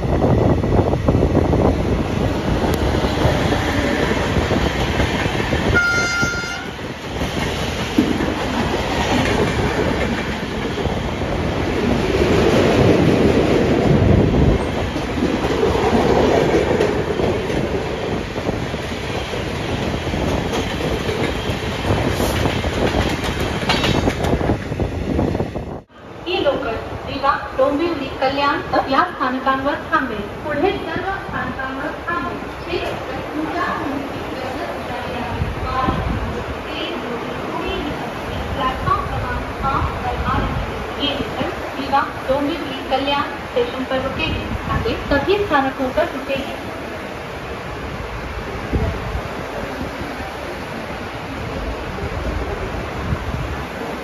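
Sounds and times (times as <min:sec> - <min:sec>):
train rumble: 0:00.0 - 0:54.0
train horn: 0:05.7 - 0:06.8.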